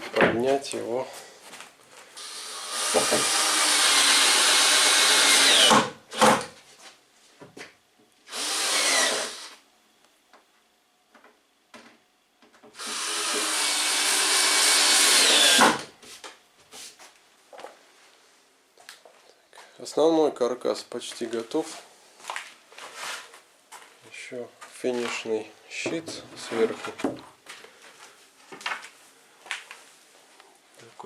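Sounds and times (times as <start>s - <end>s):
electric drill running: 2.2s - 6.0s, 8.3s - 9.6s, 12.8s - 15.9s.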